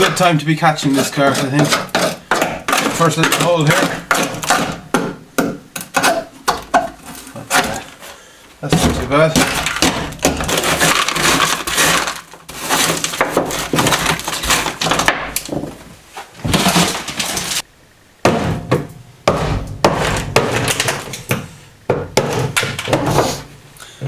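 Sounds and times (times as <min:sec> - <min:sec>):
scraping deadening off metal floor: 0:19.3 - 0:21.5.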